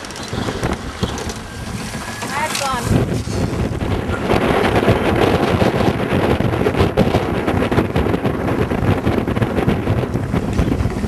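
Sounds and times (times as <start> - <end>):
boat on water: 0.0 - 11.0
wind buffeting microphone: 0.0 - 11.0.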